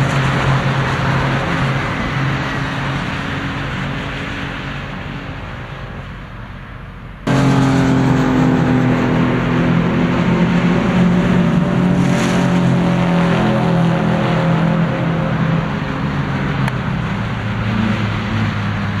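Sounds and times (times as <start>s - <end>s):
car engine under load: 5.8s - 19.0s.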